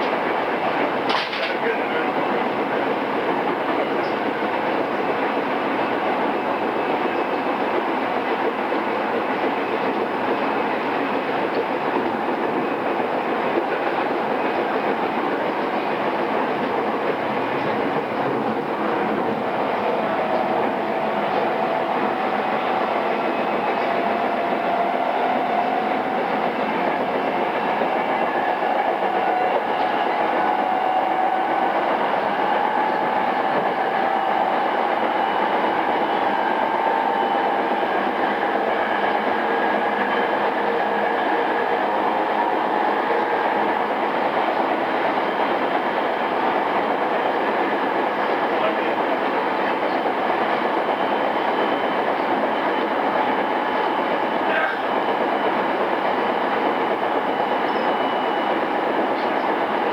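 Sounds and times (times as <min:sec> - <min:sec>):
wheels rumbling on rail: 0:00.0 - 0:59.9.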